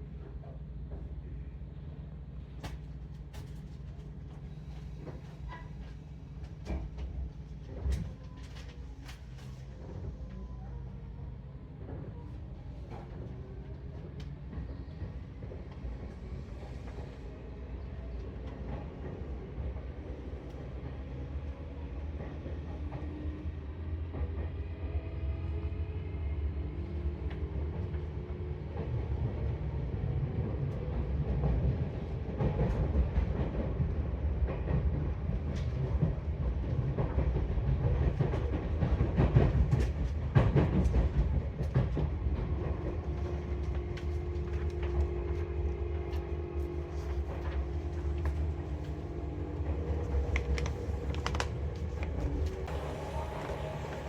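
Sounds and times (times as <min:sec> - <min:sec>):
electric train running: 0:43.1 - 0:54.0.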